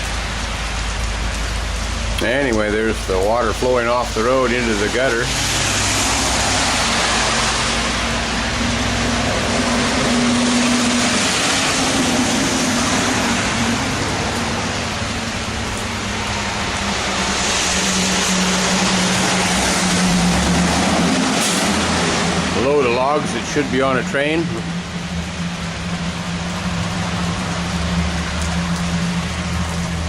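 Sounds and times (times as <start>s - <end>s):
heavy rain: 0.0s - 30.0s
highway traffic: 0.0s - 30.0s
truck engine hum: 0.0s - 30.0s
water running into gutter: 0.0s - 30.0s.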